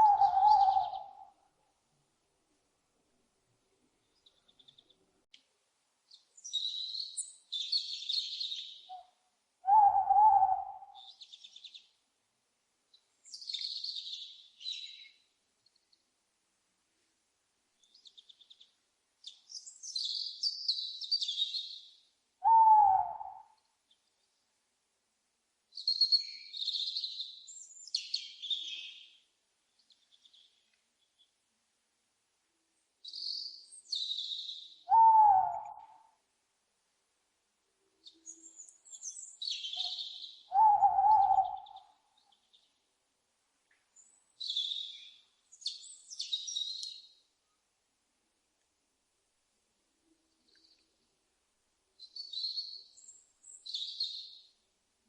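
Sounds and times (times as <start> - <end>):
owl hoot: 0.0 - 1.4, 8.9 - 11.1, 22.4 - 23.6, 34.8 - 36.1, 39.7 - 42.0
owl screeching: 34.9 - 35.8, 40.5 - 41.7.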